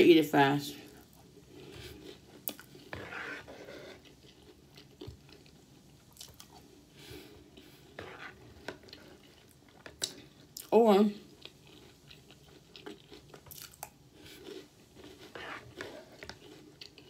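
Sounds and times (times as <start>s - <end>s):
chewing crunchy cereal: 0.9s - 17.0s
spoon scraping bowl: 2.8s - 4.2s, 7.9s - 9.2s, 14.6s - 16.6s.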